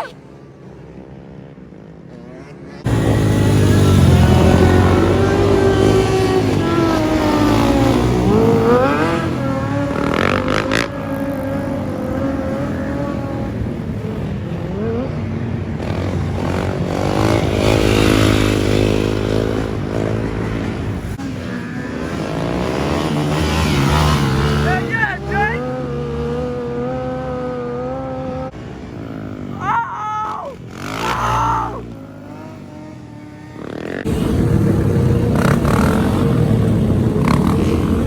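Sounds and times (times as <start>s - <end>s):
motorcycle engines revving: 0.0s - 38.0s.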